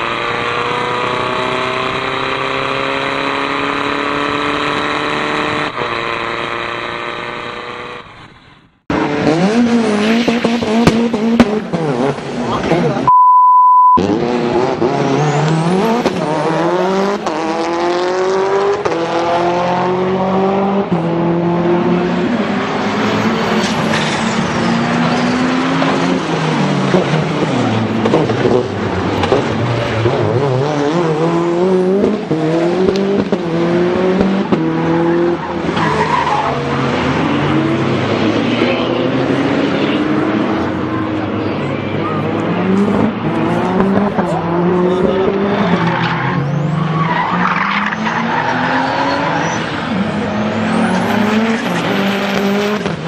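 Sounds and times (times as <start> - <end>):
car engine revving through gears: 0.0 - 8.2, 8.8 - 13.1, 13.9 - 53.0
short steady beep: 13.1 - 14.0
tyre squeal: 45.6 - 50.0.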